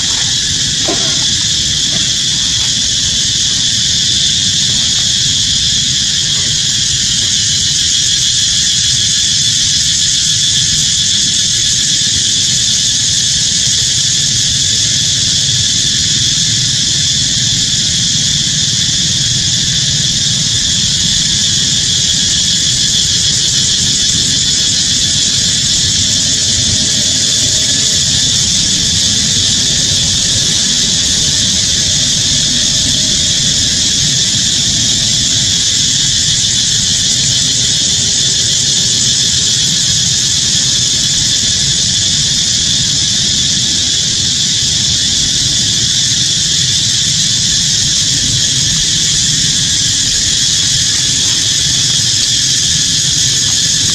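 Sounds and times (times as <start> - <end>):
insect chorus drone: 0.0 - 53.9.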